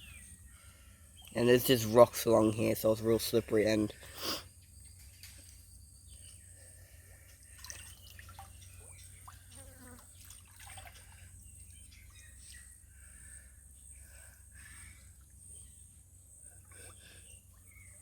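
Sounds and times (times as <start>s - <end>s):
water drips and splashes: 7.3s - 12.2s.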